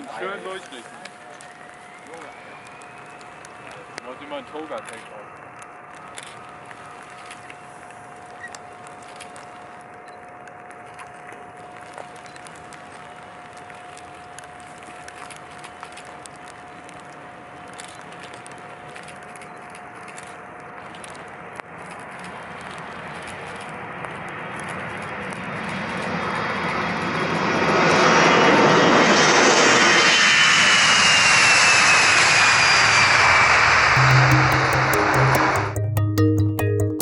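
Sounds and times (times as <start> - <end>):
aircraft engines roaring: 0.0 - 8.1, 23.8 - 35.6
high falling engine whine: 1.2 - 4.8, 27.9 - 37.0.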